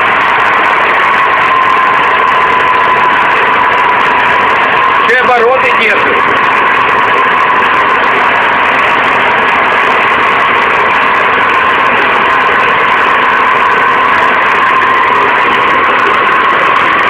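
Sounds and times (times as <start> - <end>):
petrol engine running steadily: 0.0 - 17.0.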